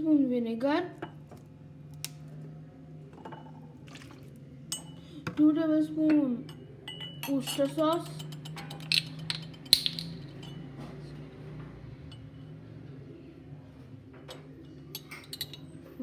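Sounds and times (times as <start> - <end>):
metal spoon clinking on bowl: 4.7 - 5.1, 6.5 - 10.7, 14.9 - 15.8.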